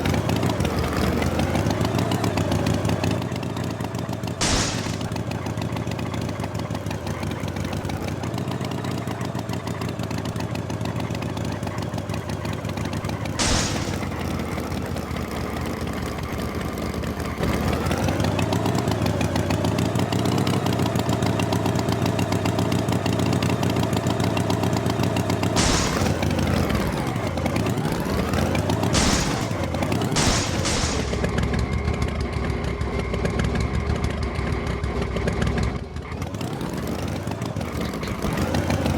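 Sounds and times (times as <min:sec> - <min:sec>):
tractor engine revving: 0:04.4 - 0:05.7, 0:25.2 - 0:31.8.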